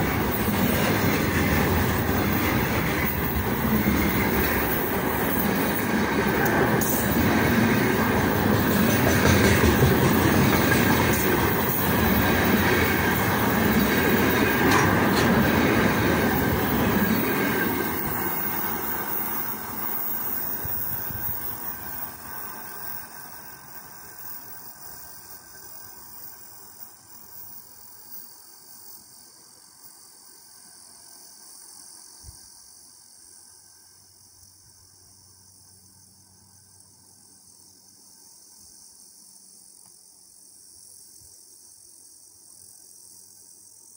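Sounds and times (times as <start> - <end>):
freight train wheels rolling: 0.0 - 29.0
insects chirring: 0.0 - 43.9.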